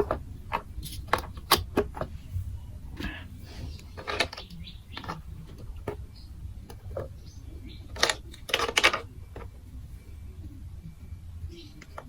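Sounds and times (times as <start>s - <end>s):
plastic blocks clicking and clattering: 0.0s - 2.1s, 3.8s - 6.0s, 7.9s - 9.6s.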